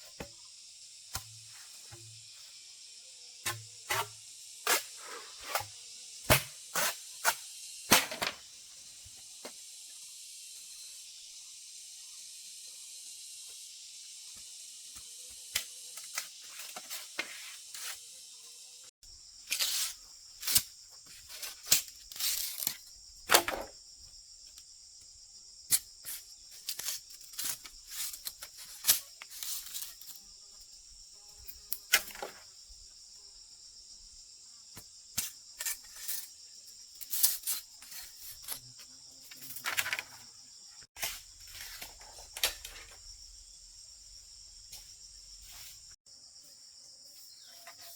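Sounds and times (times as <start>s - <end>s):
crickets chirring: 0.0s - 47.9s.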